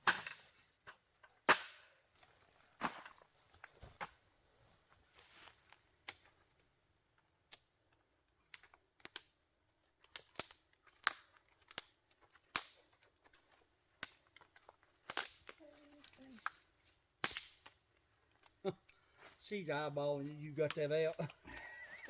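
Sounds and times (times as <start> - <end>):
dry sticks snapping: 6.0 - 6.3, 7.4 - 9.4, 10.0 - 19.0, 20.7 - 21.7.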